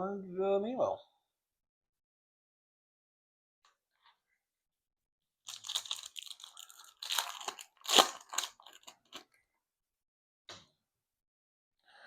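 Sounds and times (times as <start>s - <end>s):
plastic wrapper crinkling: 5.5s - 9.2s.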